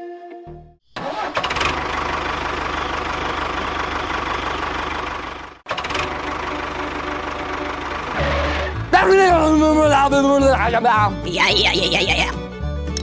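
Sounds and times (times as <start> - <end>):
small engine running: 1.0 - 9.0.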